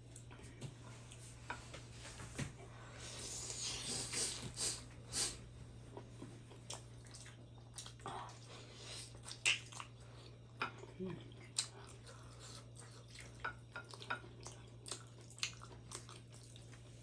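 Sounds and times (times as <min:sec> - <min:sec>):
mouth clicks and smacks: 0:09.3 - 0:09.9
wet chewing: 0:11.3 - 0:16.9.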